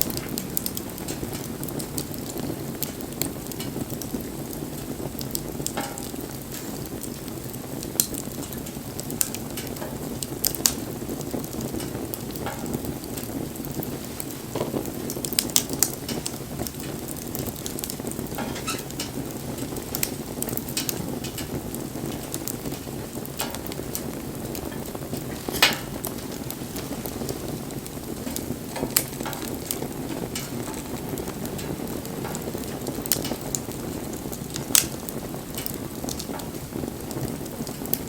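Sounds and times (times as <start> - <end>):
wood fire crackling: 0.0 - 38.0
sharp pops: 25.1 - 27.4.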